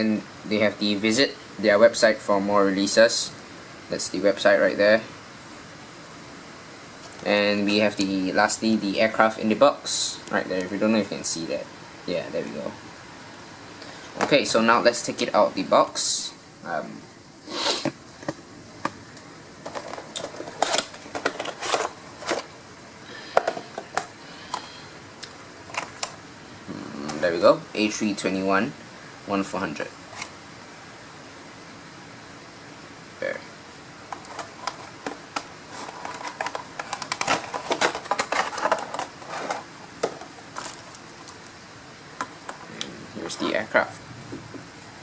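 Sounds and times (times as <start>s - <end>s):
bubble wrap crinkling and clicking: 19.1s - 22.5s, 34.2s - 41.6s
packaging rustling: 19.6s - 22.6s, 25.6s - 26.2s, 34.1s - 41.6s.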